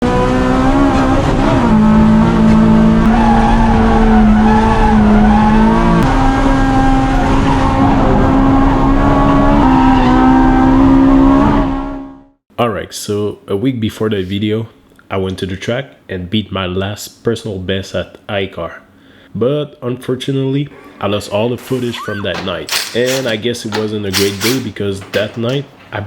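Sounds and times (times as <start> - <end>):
car engine revving high: 0.0 - 12.3
tyres squealing: 20.7 - 26.0.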